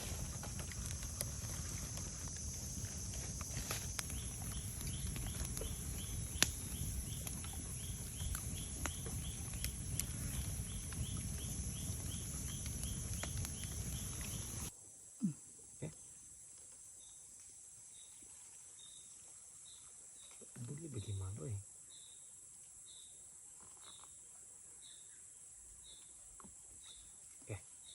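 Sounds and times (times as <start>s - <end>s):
wood fire crackling and popping: 0.0s - 14.7s
high insect drone: 0.0s - 16.4s.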